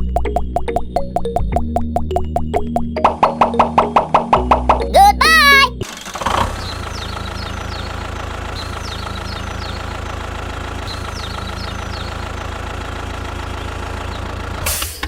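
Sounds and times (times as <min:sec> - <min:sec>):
engine idling: 0:06.7 - 0:14.6.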